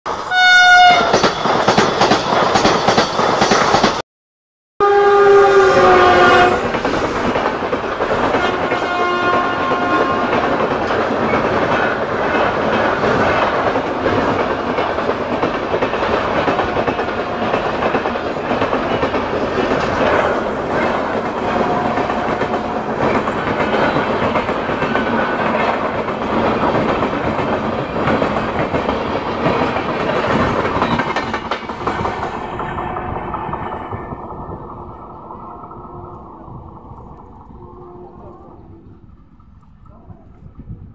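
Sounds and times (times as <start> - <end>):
train horn: 0.2 - 1.2, 4.8 - 6.8, 8.1 - 10.6, 20.1 - 23.0
train wheels clattering over rail joints: 1.0 - 4.0, 6.6 - 35.2.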